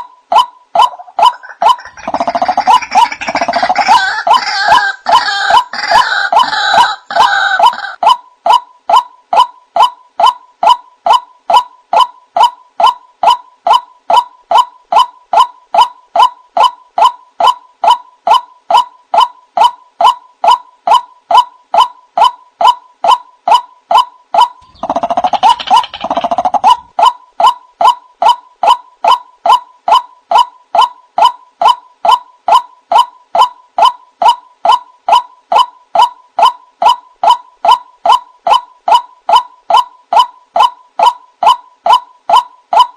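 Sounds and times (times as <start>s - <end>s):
waterhen hooting calls: 0.0s - 42.9s
harsh croaking bird call: 0.8s - 8.0s, 24.4s - 27.6s.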